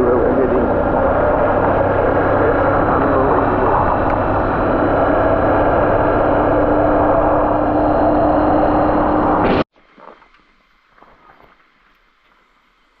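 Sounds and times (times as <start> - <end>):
motorcycle engine running: 0.0 - 9.4
wind rushing: 0.0 - 9.6.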